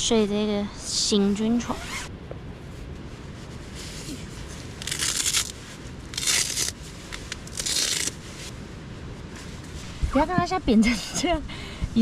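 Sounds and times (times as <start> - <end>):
nylon rasping: 3.4 - 8.5.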